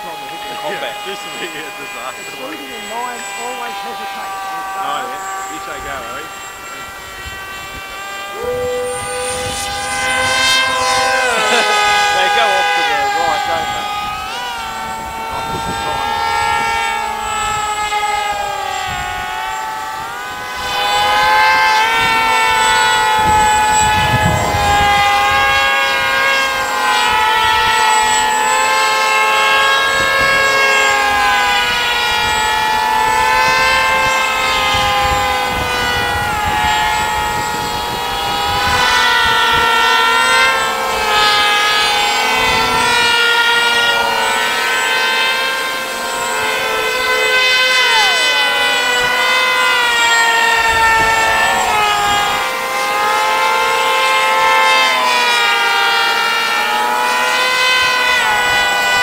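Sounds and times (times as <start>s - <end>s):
electric propeller motors buzzing: 0.0s - 59.0s.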